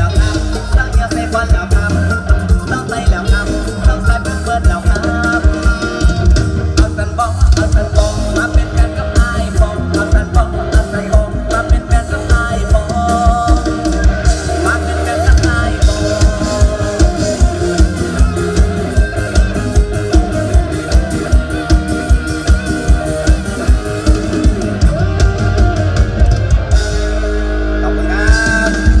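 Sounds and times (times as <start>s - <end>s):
drum kit beat: 0.0s - 29.0s
plucked-string melody: 8.0s - 27.9s.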